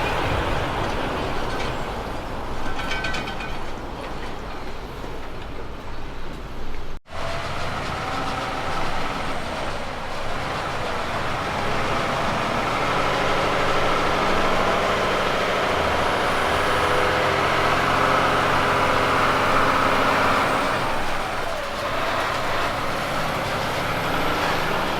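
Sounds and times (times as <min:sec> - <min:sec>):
truck diesel engine running: 0:07.1 - 0:24.9.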